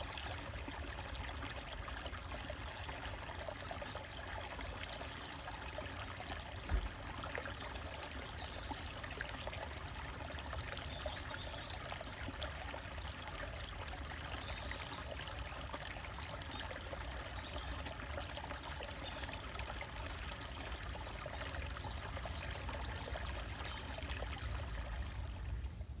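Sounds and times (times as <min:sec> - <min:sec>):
stream splashing over rocks: 0:00.0 - 0:25.4
low thump: 0:06.7 - 0:07.2.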